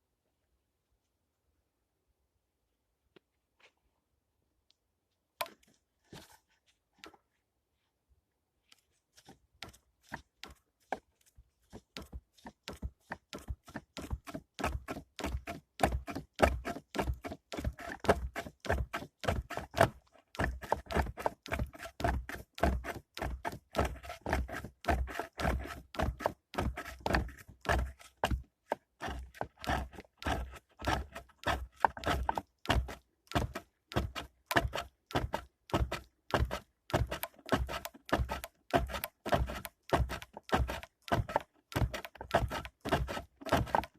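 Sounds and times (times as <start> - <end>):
dull wooden knocks: 11.7 - 43.9.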